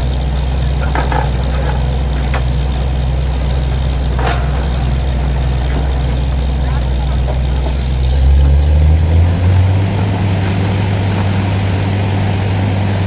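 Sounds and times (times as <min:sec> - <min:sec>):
heavy diesel engine droning: 0:00.0 - 0:13.0.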